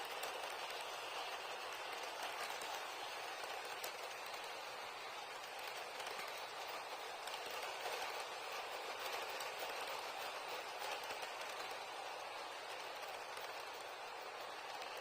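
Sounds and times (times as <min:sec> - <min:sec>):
model train wheels rolling on rails: 0:00.0 - 0:15.0.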